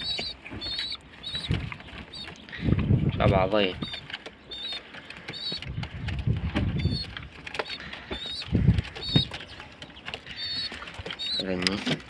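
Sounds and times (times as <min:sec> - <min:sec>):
low rumbling bumps: 0:00.0 - 0:04.2, 0:05.2 - 0:10.8.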